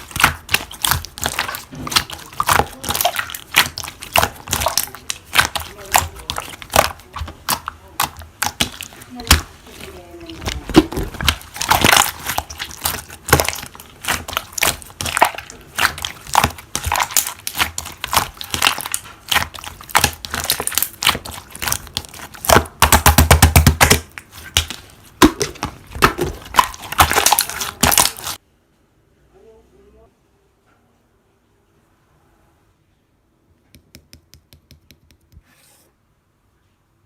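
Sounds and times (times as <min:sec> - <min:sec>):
slime crackling and popping: 0:00.0 - 0:28.4.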